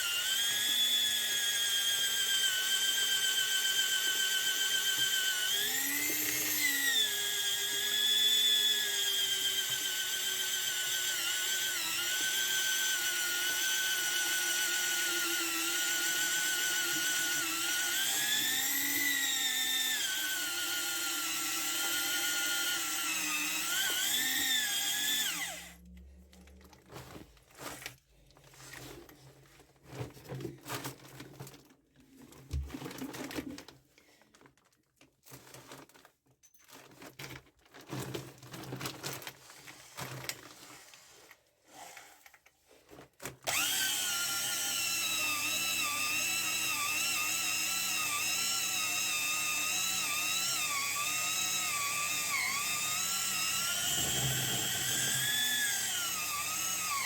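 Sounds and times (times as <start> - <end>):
electric drill whining: 0.0 - 25.8, 43.5 - 57.0.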